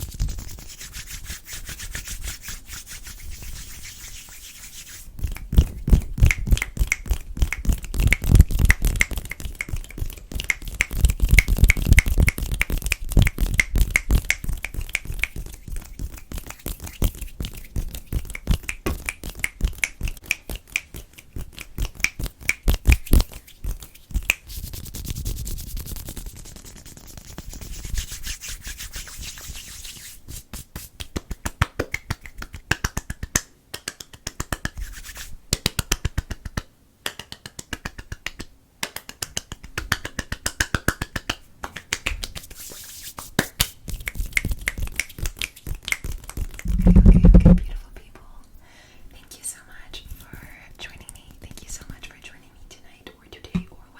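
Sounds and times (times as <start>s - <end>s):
scratching and rubbing on surface: 0.0s - 20.2s, 20.9s - 31.0s, 34.7s - 35.4s, 42.2s - 47.6s.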